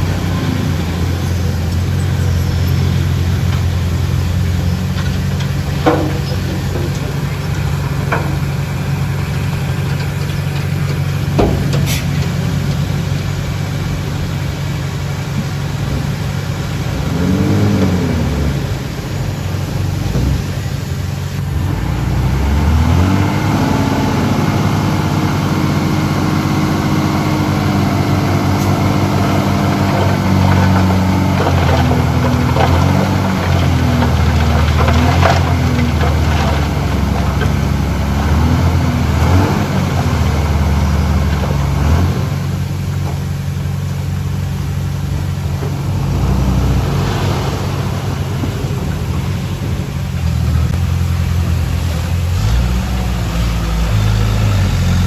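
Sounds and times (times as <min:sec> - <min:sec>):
heavy machinery diesel engine: 0:00.0 - 0:55.0
metal clanks and rattles: 0:00.8 - 0:13.6, 0:29.2 - 0:38.4.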